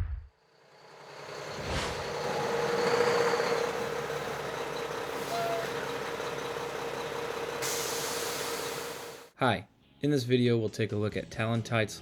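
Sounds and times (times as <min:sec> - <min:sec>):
truck engine hum: 0:00.0 - 0:09.3.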